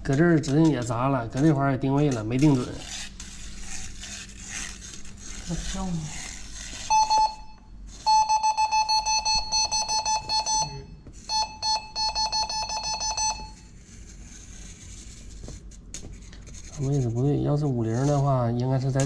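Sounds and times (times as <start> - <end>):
wall detector beeping rapidly: 6.8 - 13.7.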